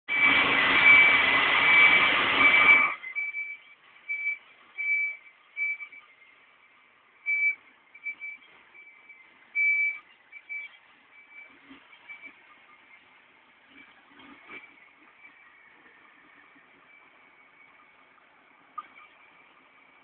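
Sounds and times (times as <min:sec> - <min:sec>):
truck reversing beeper: 0:00.1 - 0:20.0.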